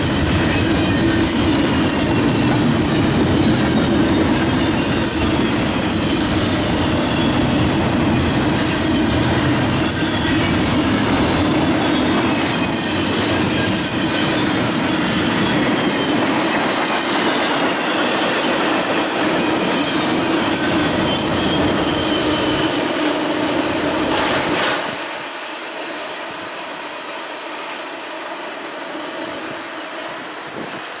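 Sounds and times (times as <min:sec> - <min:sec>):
high wheel squeal: 0:00.0 - 0:24.6
clickety-clack over rail joints: 0:00.0 - 0:25.2
freight train wheels on rail: 0:00.0 - 0:31.0.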